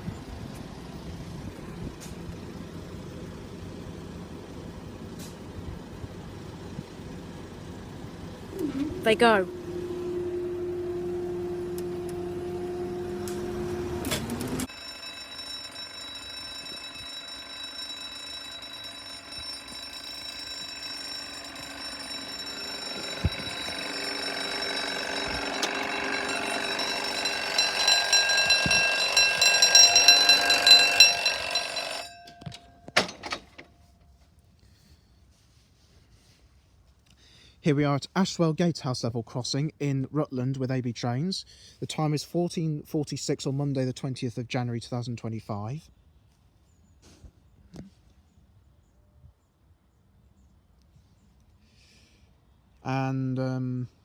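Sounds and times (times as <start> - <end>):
hum with rising tone: 5.6 - 32.3
level crossing warning alarm: 8.5 - 33.8.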